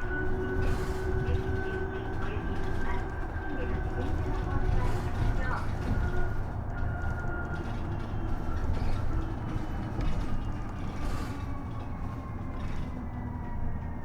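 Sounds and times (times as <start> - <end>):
electric bus drive whine: 0.0 - 14.0
road rumble: 0.0 - 14.0.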